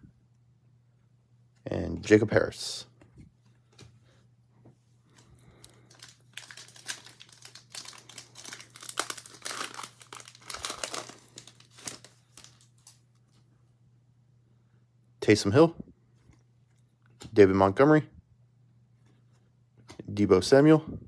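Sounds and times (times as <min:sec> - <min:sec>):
foil wrapper crinkling and tearing: 0:05.2 - 0:13.2.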